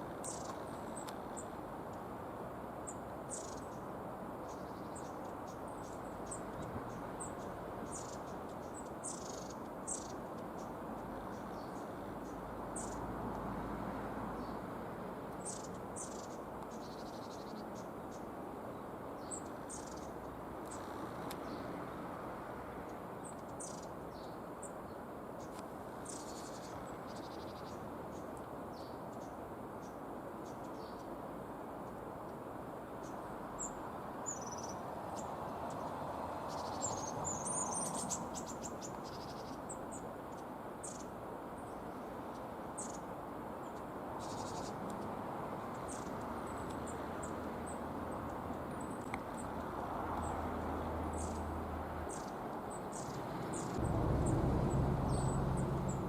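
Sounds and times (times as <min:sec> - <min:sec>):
small birds calling: 0:00.2 - 0:01.6, 0:02.9 - 0:13.0, 0:15.4 - 0:18.3, 0:19.2 - 0:21.7, 0:23.2 - 0:31.1, 0:33.0 - 0:35.9, 0:36.5 - 0:56.0
low background rumble: 0:53.7 - 0:56.0.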